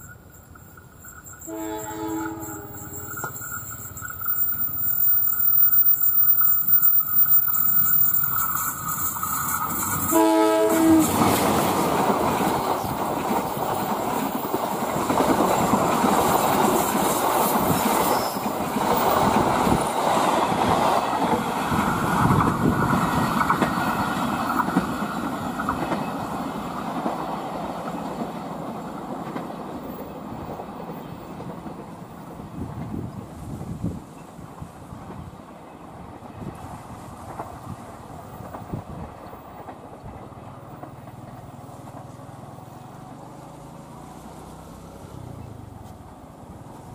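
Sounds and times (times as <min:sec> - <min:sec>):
train wheels rumbling on rails: 0:00.0 - 0:46.9
train horn blast: 0:01.4 - 0:03.4, 0:10.0 - 0:11.3.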